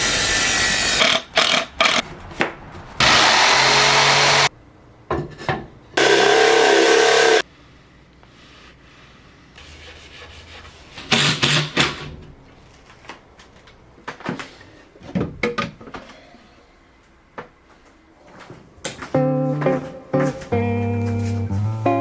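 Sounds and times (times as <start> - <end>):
power tool cutting wood: 0.0 - 2.0, 3.0 - 4.5, 6.0 - 7.4.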